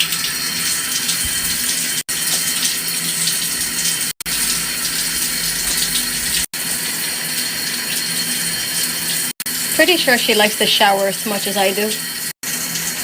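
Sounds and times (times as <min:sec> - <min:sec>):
shower water spraying: 0:00.0 - 0:13.0.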